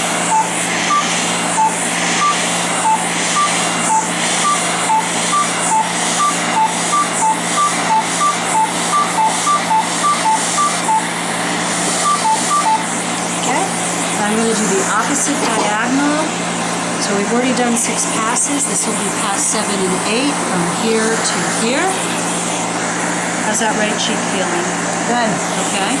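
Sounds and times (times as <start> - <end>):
laser handpiece beeping: 0.2 - 11.2, 11.8 - 13.0.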